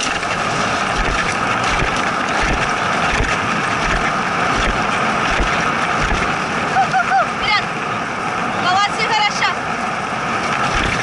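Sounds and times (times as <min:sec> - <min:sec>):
sled gliding over snow: 0:00.0 - 0:11.0
dull low thumps: 0:00.2 - 0:06.4.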